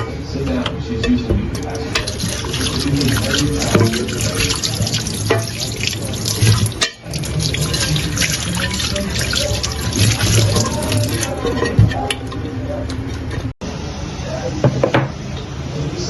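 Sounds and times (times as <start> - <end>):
tap water running into sink: 2.0 - 12.0.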